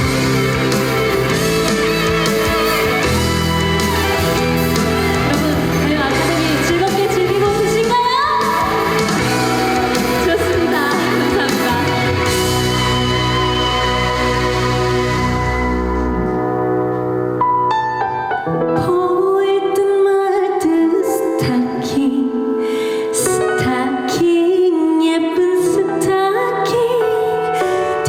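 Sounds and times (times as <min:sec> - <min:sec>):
woman singing with band: 0:05.2 - 0:09.0, 0:09.6 - 0:12.3.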